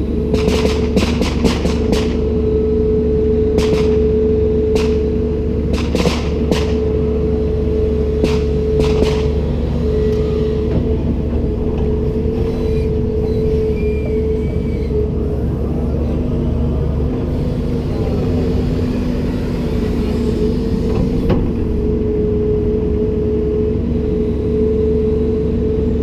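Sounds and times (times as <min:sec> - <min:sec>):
excavator engine rumbling: 0:00.0 - 0:26.0
sharp knocks: 0:05.7 - 0:06.8, 0:08.2 - 0:09.4.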